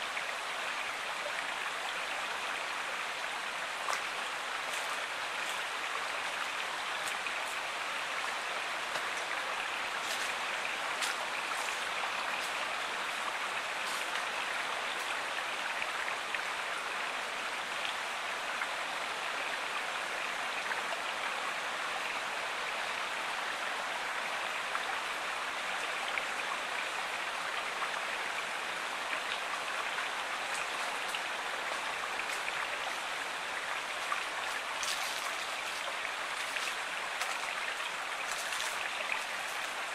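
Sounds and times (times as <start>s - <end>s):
water splashes and drips: 0.0s - 16.7s, 25.5s - 39.9s
stream flowing: 0.0s - 39.9s.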